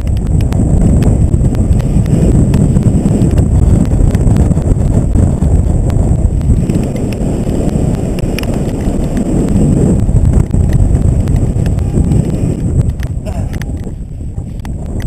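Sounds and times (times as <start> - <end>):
sharp ticks: 0.0 - 12.2
wind buffeting microphone: 0.0 - 15.0.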